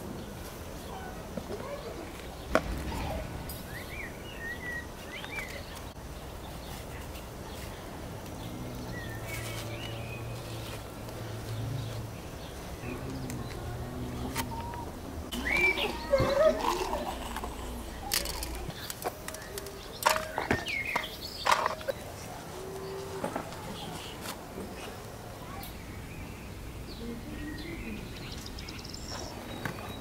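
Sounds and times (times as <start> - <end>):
small birds chirping: 0.0 - 30.0
low hum: 2.2 - 6.4.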